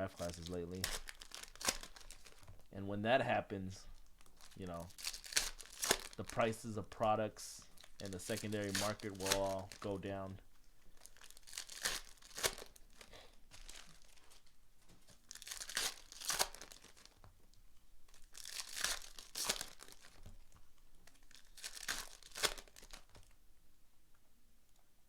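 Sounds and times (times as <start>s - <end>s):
wrappers ripping: 0.0s - 2.6s, 4.0s - 6.8s, 7.8s - 10.3s, 10.9s - 17.3s, 18.1s - 23.4s
wrappers rustling: 0.0s - 2.7s, 3.8s - 17.3s, 18.0s - 23.4s.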